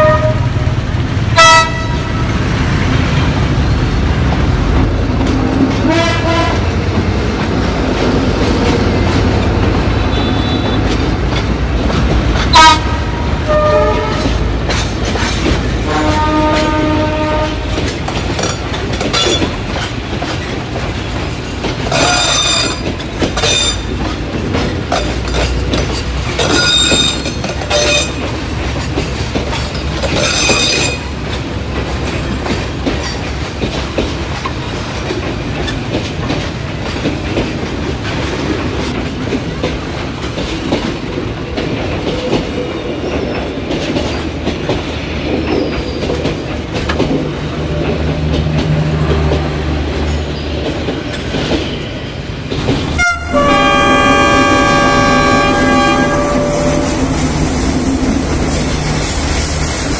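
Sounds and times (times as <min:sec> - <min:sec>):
train horn blasts: 0:00.0 - 0:00.7, 0:01.3 - 0:02.4, 0:05.8 - 0:06.8, 0:09.9 - 0:11.0, 0:12.4 - 0:14.4, 0:15.8 - 0:17.9, 0:52.6 - 0:58.4
train rumble and clickety-clack: 0:00.0 - 0:59.9.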